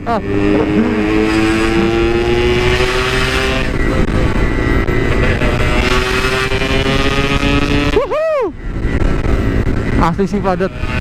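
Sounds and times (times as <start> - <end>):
low rumble: 0.0 - 5.9, 8.0 - 10.7
two-stroke motorcycle engine accelerating: 0.0 - 8.1, 8.7 - 11.0.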